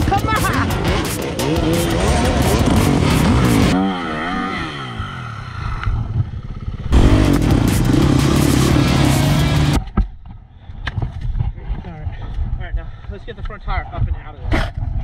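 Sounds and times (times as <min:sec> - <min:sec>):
dirt bike engines revving: 0:00.0 - 0:09.8.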